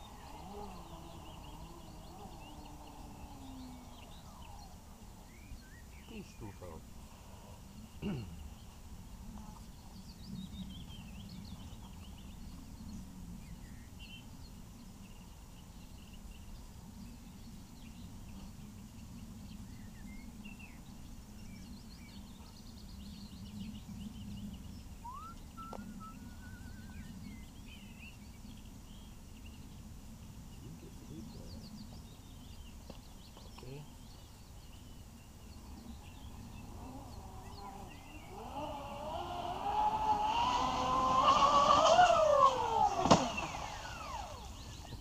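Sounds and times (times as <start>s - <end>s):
low steady rumble: 0.0s - 45.0s
small birds chirping: 0.0s - 45.0s
bird trill: 24.3s - 29.1s, 30.7s - 45.0s.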